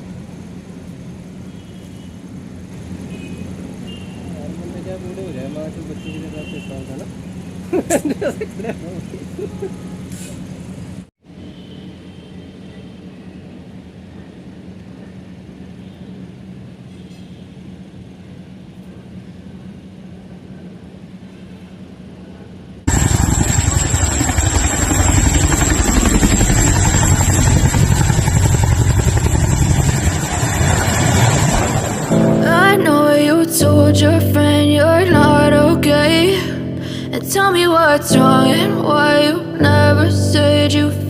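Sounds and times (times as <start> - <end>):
faint aircraft engine hum: 0.0 - 41.0
aircraft engine roar: 17.6 - 41.0
high whine: 22.9 - 41.0.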